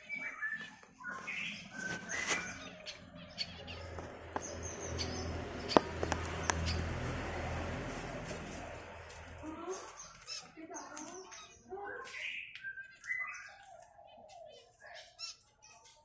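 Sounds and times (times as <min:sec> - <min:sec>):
birds chirping: 0:00.0 - 0:16.0
sharp clicks: 0:03.9 - 0:06.9.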